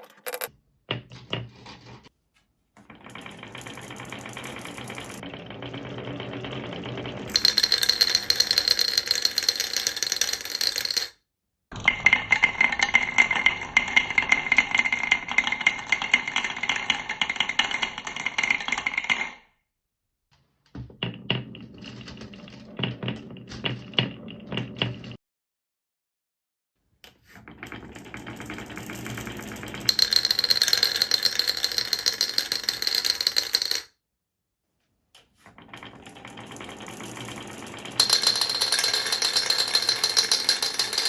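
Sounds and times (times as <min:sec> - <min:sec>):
marbles rattling down tracks: 0:00.0 - 0:00.5, 0:02.9 - 0:11.2, 0:12.1 - 0:19.1, 0:27.5 - 0:33.9, 0:35.6 - 0:41.0.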